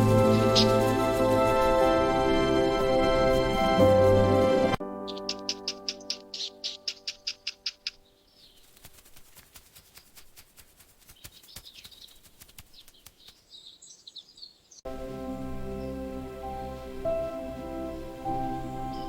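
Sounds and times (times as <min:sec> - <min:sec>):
canaries chirping: 0:00.0 - 0:01.8, 0:05.0 - 0:08.7, 0:11.1 - 0:14.9
soft music: 0:00.0 - 0:08.0, 0:14.9 - 0:19.0.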